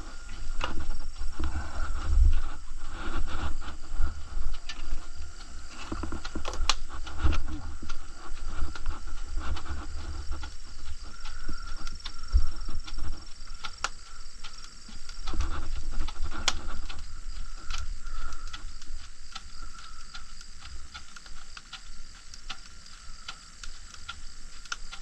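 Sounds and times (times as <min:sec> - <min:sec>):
heavy low rumble: 0:00.0 - 0:13.6
wood fire crackling and popping: 0:00.0 - 0:25.0.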